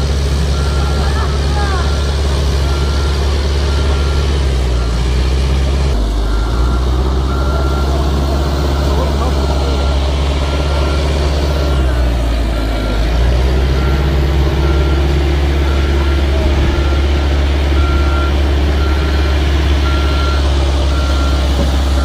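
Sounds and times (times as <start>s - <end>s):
heavy machine engine rumbling: 0.0s - 22.0s
backup alarm beeping: 12.8s - 22.0s.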